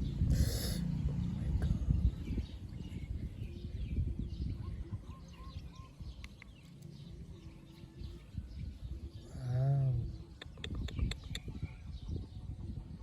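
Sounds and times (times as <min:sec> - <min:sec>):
low rumble: 0:00.0 - 0:05.1
small bird chirps: 0:01.6 - 0:11.9.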